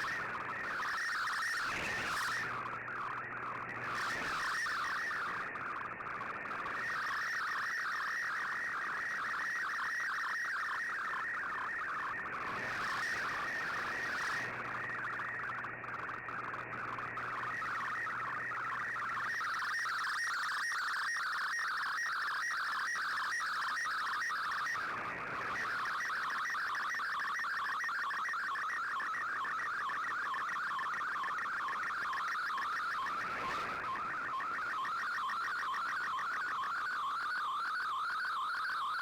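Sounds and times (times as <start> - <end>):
warbling data tones: 0.0 - 11.6, 25.4 - 39.0.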